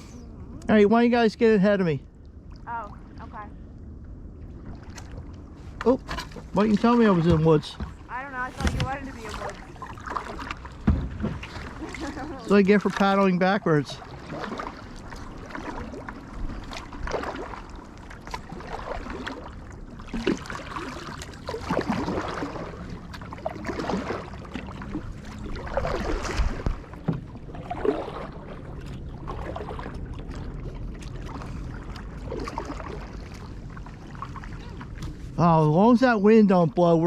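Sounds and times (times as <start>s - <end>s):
kayak paddle splashing in water: 4.5s - 35.5s.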